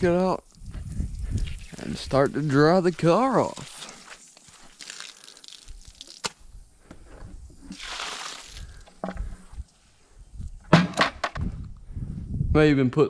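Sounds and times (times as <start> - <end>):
water splashing from bucket: 7.7 - 9.0
bucket knocks: 10.7 - 11.4.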